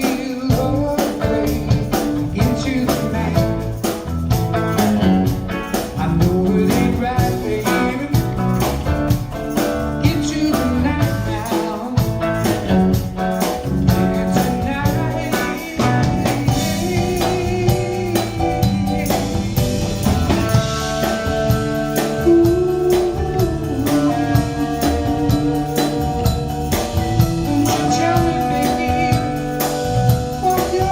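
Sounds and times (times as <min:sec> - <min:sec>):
band playing with guitar and drums: 0:00.0 - 0:30.9.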